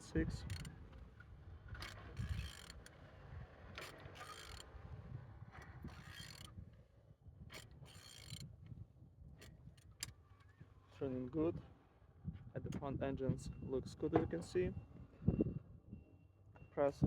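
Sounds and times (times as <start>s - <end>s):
mechanical clicks and ratcheting: 0.3s - 0.7s, 1.8s - 2.9s, 3.8s - 4.7s, 5.8s - 6.5s, 7.5s - 8.5s.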